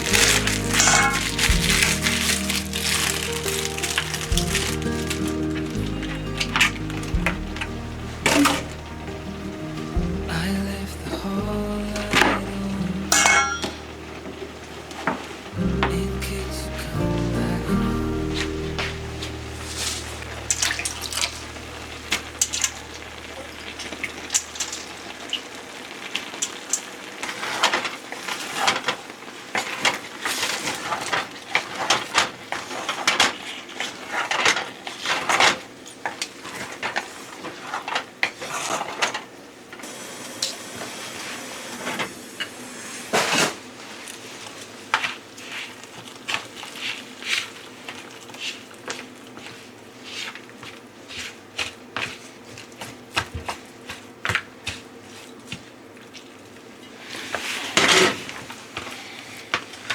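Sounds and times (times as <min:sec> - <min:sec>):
dishes and utensils clinking: 0:00.0 - 0:10.6, 0:13.1 - 0:16.4
background music: 0:00.0 - 0:24.3.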